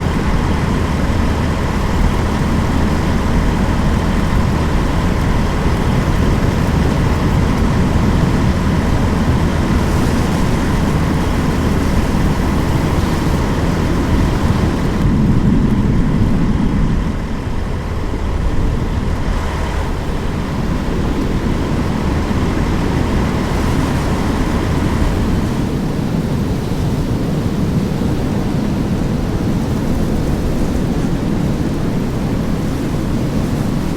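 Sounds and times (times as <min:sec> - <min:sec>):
vehicle engine and road noise: 0:00.0 - 0:26.0.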